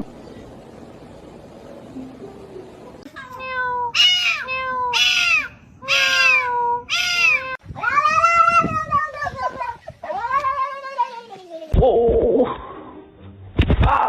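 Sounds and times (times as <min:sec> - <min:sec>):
cat meowing: 0:03.2 - 0:09.2.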